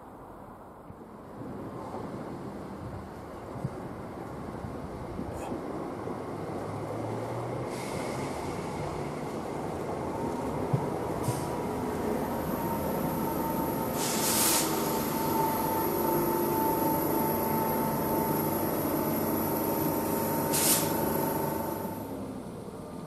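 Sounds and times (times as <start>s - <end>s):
train running: 1.0s - 23.0s
steady whine: 11.7s - 22.2s
short hisses: 14.0s - 14.9s, 20.5s - 21.0s.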